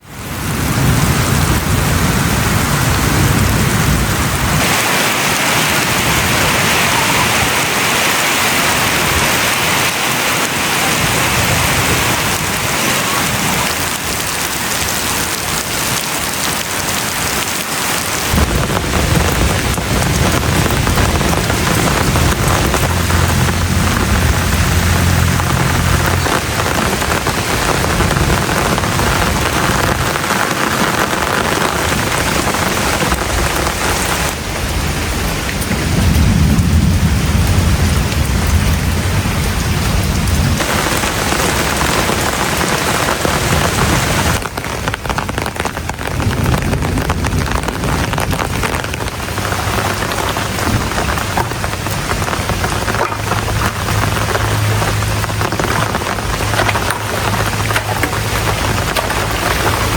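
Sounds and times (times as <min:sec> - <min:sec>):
heavy rain pouring: 0:00.0 - 0:59.9
low rumbling: 0:18.2 - 0:59.9.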